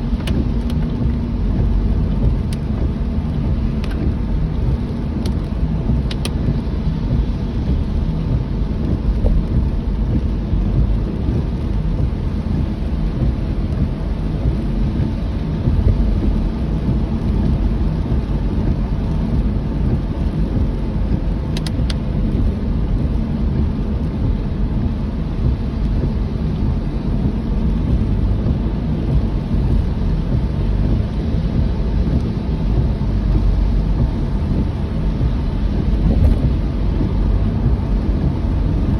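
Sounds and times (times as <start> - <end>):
car driving rumble: 0.0 - 38.9
rain hiss: 0.1 - 38.9.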